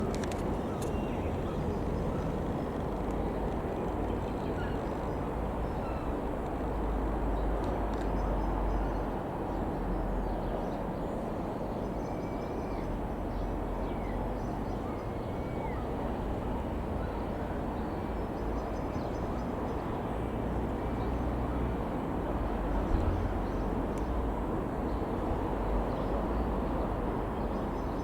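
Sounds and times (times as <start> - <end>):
bird calls: 0.0 - 6.2
light aircraft engine running: 0.0 - 28.0.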